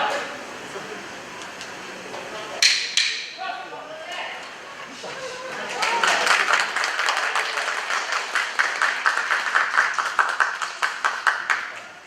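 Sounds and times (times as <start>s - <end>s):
spectators clapping rhythmically: 5.6s - 12.0s.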